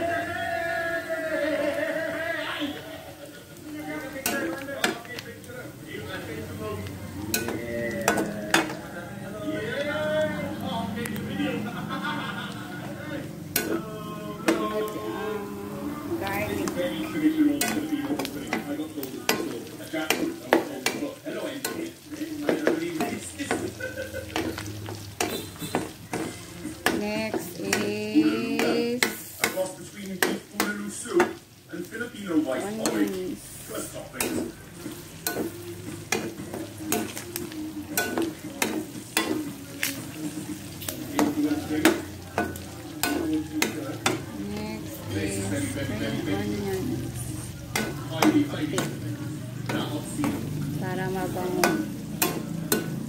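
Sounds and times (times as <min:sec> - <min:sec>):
meat sizzling in hot oil: 0:00.0 - 0:53.0
metal utensil scraping a pan: 0:04.0 - 0:05.2, 0:07.1 - 0:08.9, 0:13.5 - 0:15.4, 0:16.2 - 0:31.4, 0:32.3 - 0:44.3, 0:49.6 - 0:53.0.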